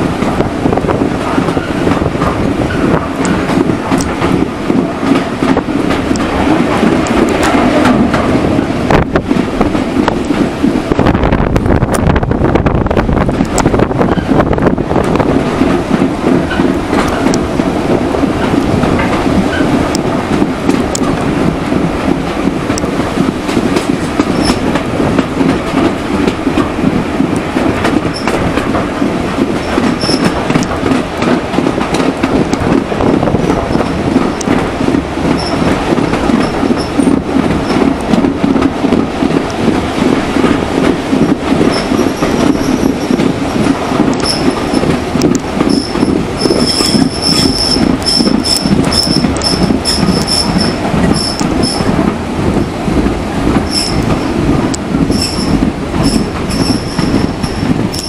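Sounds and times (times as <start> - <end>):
train wheels rumbling on rails: 0.0 - 58.0
high-pitched wheel squeals: 45.7 - 51.8, 53.7 - 54.0, 55.1 - 58.0.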